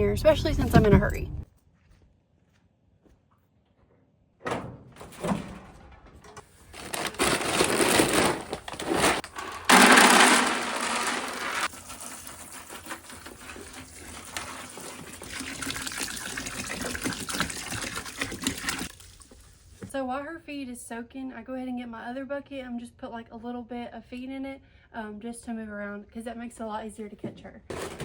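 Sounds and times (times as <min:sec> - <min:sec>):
water pouring into a bucket: 0:09.7 - 0:19.9.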